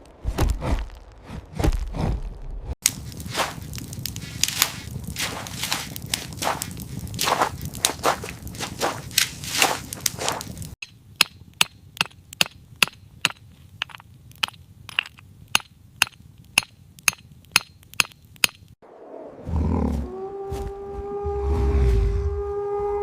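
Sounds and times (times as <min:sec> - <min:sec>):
footsteps crunching: 0:02.9 - 0:10.8
low rumbling roar: 0:18.8 - 0:23.0
long horn-like note: 0:19.5 - 0:23.0.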